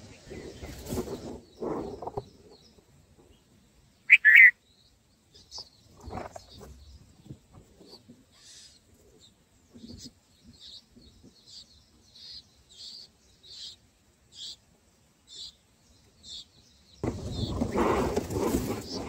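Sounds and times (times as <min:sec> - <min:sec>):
short high bird chirps: 0:04.0 - 0:04.6.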